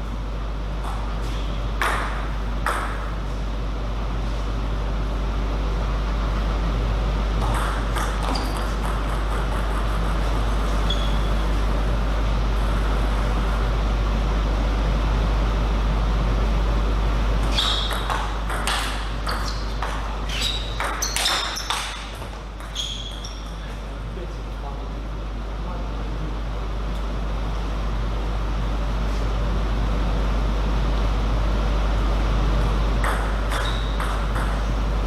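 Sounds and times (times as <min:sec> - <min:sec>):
table tennis ball hits: 0:01.8 - 0:03.1, 0:07.4 - 0:10.5, 0:17.4 - 0:23.6, 0:33.0 - 0:34.8.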